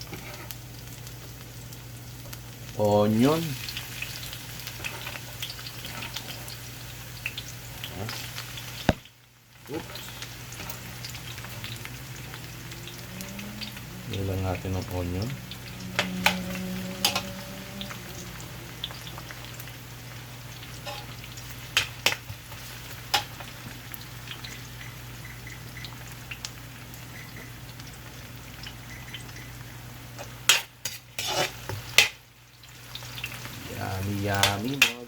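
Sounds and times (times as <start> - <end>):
garlic and onion sizzling: 0.0 - 35.0.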